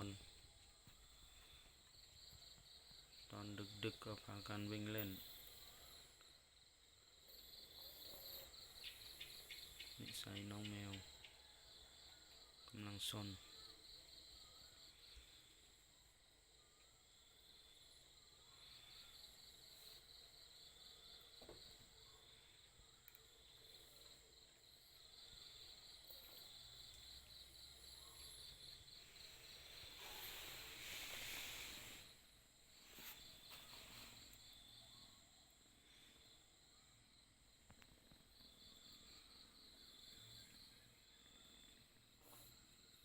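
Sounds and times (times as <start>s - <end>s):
crickets chirping: 0.0s - 43.0s
rustling hiss-like noise: 27.9s - 34.8s.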